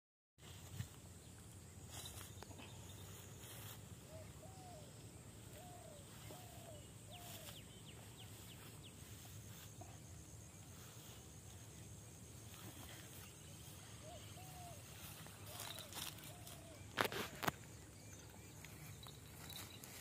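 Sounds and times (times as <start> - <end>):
bird calling faintly: 1.9 - 9.9, 12.5 - 20.0.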